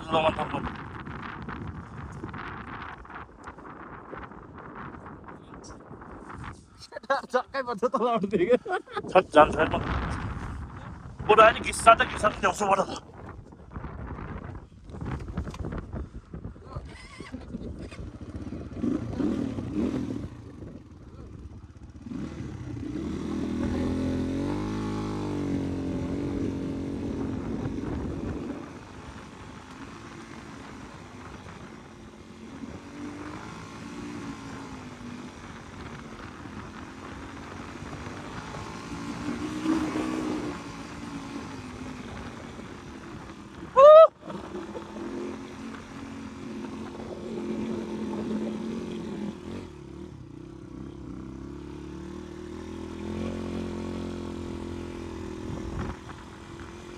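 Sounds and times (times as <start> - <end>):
dirt bike engine revving: 16.9 - 56.9.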